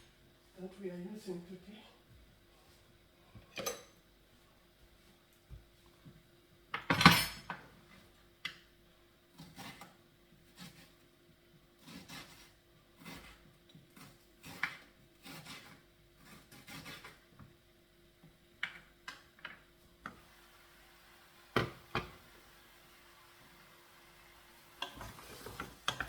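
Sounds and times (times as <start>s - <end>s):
knife scraping board: 10.5s - 11.0s, 11.8s - 13.4s, 14.0s - 17.2s.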